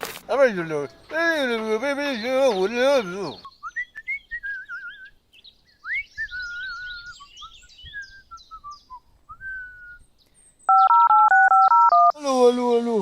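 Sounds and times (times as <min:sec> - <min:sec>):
bird song whistles and chirps: 0:02.1 - 0:10.9.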